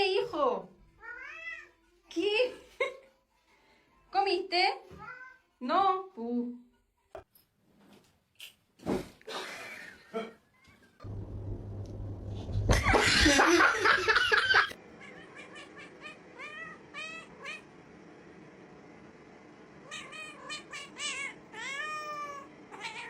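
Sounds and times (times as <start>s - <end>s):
cat meowing: 1.0s - 1.7s, 15.0s - 17.6s, 19.9s - 23.0s.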